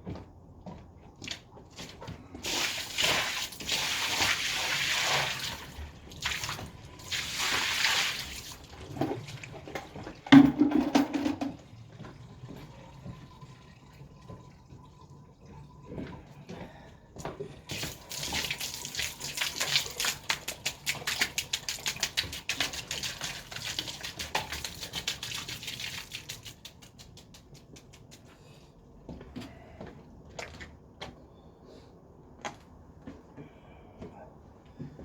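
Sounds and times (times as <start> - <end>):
fast patter of clicks: 20.0 - 28.4.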